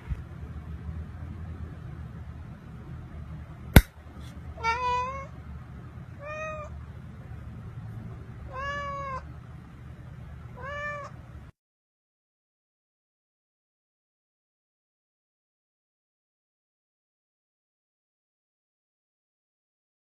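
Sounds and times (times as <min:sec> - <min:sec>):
cat meowing: 0:04.6 - 0:05.3, 0:06.2 - 0:06.8, 0:08.5 - 0:09.2, 0:10.6 - 0:11.2.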